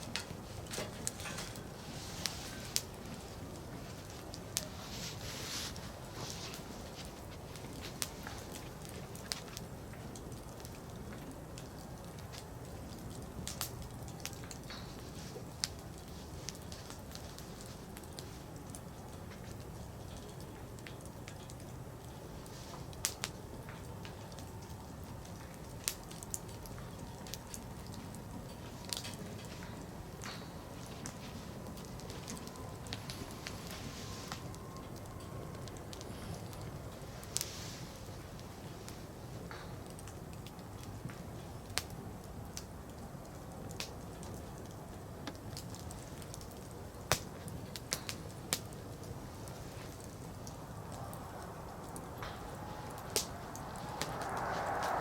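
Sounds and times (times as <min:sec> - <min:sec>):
campfire crackling and popping: 0:00.0 - 0:55.0
low rushing background: 0:49.2 - 0:55.0.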